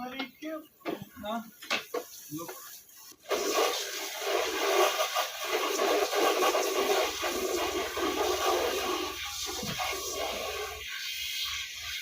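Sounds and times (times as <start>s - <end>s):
water gushing from tap: 3.2s - 12.0s.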